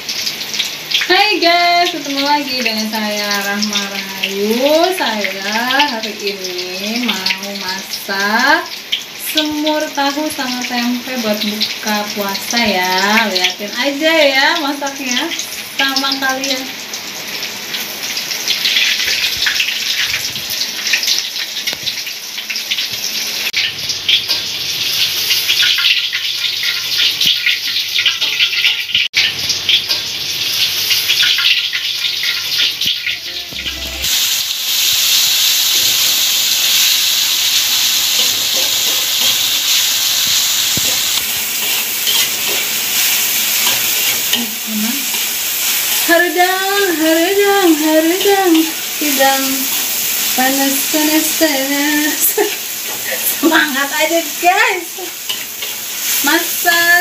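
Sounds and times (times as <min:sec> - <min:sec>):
spice paste sizzling and crackling: 0:00.0 - 0:33.0, 0:33.6 - 0:57.0
spatula stirring in a wok: 0:36.1 - 0:46.2, 0:55.0 - 0:56.6.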